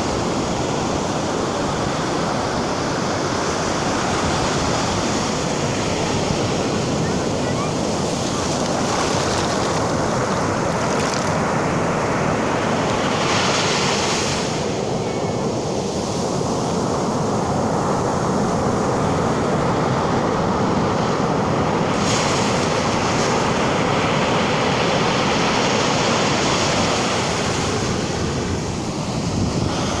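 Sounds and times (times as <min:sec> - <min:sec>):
ocean surf breaking: 0:00.0 - 0:30.0
wind buffeting microphone: 0:14.0 - 0:30.0.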